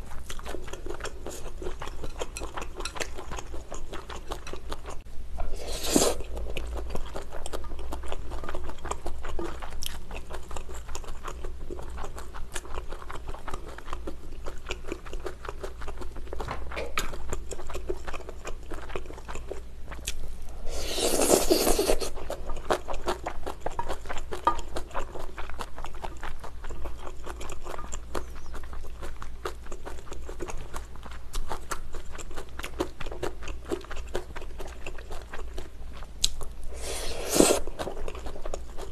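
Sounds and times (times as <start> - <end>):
chewing noodles: 0.0 - 38.9.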